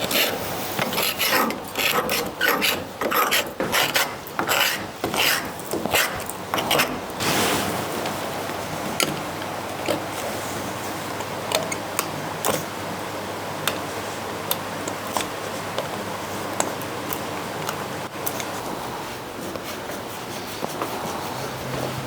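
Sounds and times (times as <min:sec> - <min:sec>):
paint scraper scraping wood: 0:00.0 - 0:07.8
steady hiss: 0:07.2 - 0:08.9.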